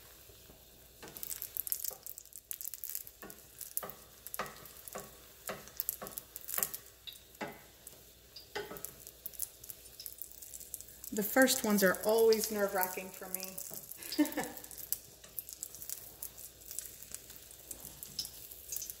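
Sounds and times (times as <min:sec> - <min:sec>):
food sizzling in oil: 0:00.0 - 0:19.0
wooden spatula knocking pan: 0:03.2 - 0:07.8, 0:08.5 - 0:09.0.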